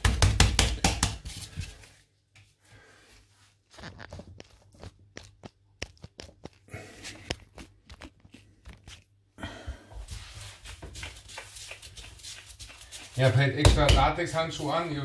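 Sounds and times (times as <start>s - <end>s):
gloved hands rustling: 3.5s - 9.3s, 10.0s - 13.4s.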